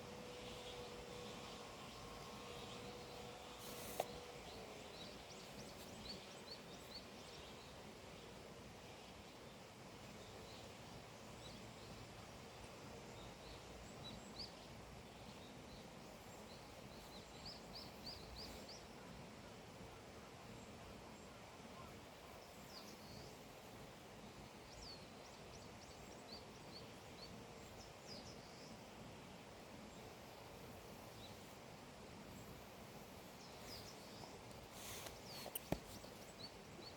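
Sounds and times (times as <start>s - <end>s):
small birds chirping: 0.0s - 8.3s, 13.2s - 18.9s, 29.9s - 36.9s
steady background hush: 21.5s - 36.9s.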